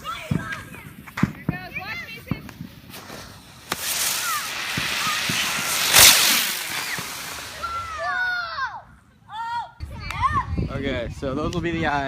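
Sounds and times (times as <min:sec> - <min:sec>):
firework crack: 0:00.0 - 0:08.8
firework hissing: 0:01.4 - 0:08.4
firework burst: 0:02.8 - 0:08.2.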